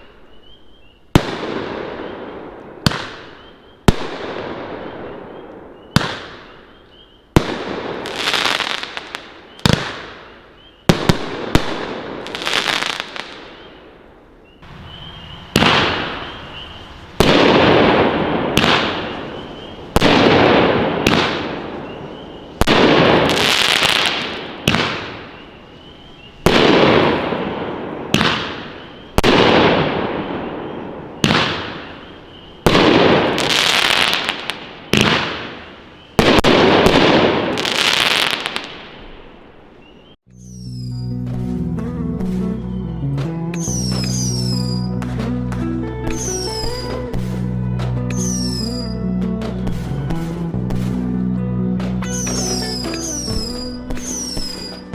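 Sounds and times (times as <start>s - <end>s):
firework crackle bursting: 7.4s - 39.8s, 52.1s - 54.9s
firework shot reports: 14.6s - 39.1s.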